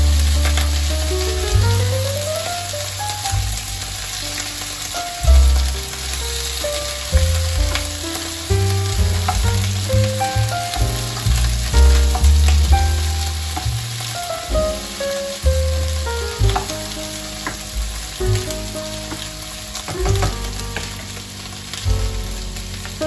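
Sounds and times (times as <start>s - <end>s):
background music: 0.0s - 23.0s
beans sizzling in a pan: 0.0s - 23.0s
spatula turning food in pan: 3.5s - 15.1s.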